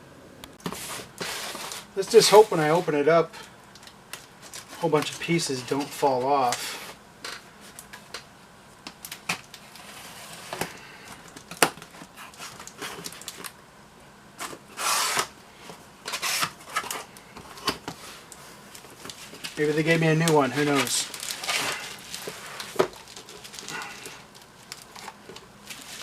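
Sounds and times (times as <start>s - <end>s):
packing rustling: 0.6s - 6.9s, 16.1s - 26.0s.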